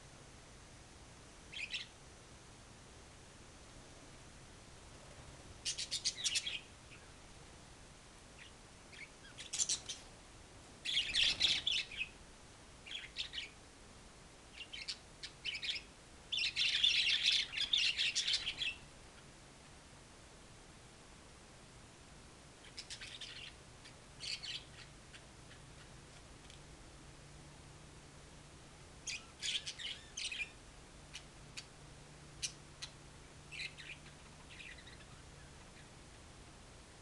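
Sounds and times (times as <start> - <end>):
parrot chirping: 22.6 - 23.6, 24.2 - 25.9, 29.0 - 31.7, 33.5 - 35.9.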